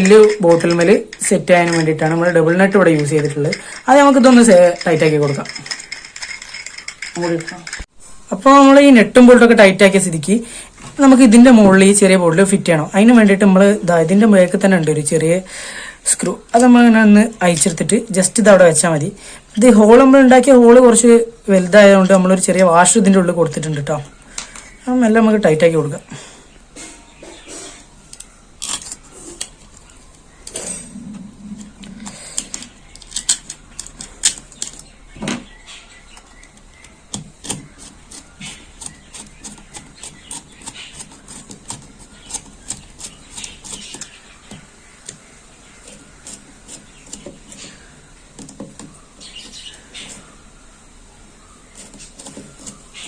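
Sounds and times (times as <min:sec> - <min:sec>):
plastic bottle parts handled: 0:31.6 - 0:35.4
nut and bolt being tightened: 0:32.4 - 0:34.8.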